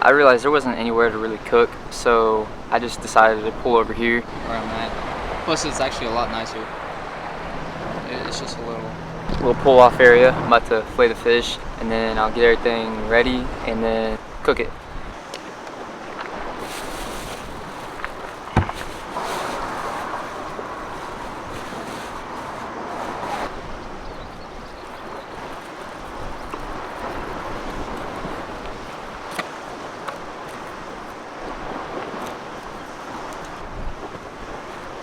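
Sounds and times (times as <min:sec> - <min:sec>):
lake waves: 0:00.0 - 0:35.0
wind: 0:00.0 - 0:35.0
sharp knock: 0:18.5 - 0:18.9.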